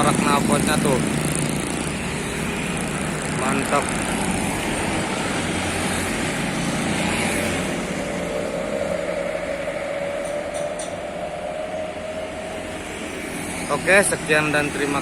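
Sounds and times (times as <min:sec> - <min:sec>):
bus engine rumbling: 0:00.0 - 0:15.0
faint rising whine: 0:02.7 - 0:15.0.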